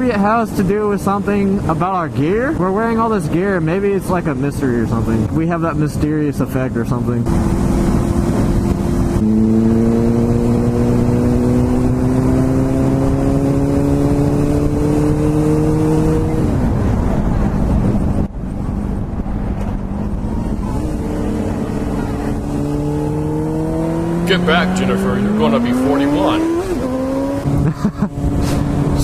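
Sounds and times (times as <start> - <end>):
motorcycle engine revving: 7.2 - 16.9, 19.9 - 29.0
wind rush on microphone: 7.2 - 24.2, 26.0 - 29.0.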